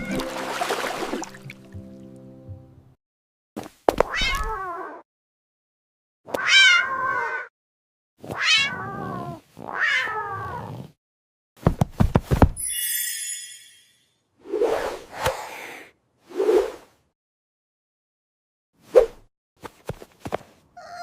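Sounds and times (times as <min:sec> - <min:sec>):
cat meowing: 0:04.1 - 0:05.0, 0:06.4 - 0:07.5, 0:08.4 - 0:10.7, 0:20.8 - 0:21.0.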